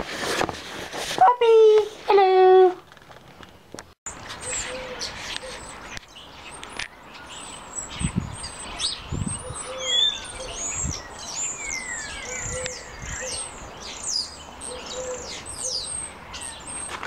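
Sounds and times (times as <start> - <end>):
birds chirping and singing: 4.1 - 17.0.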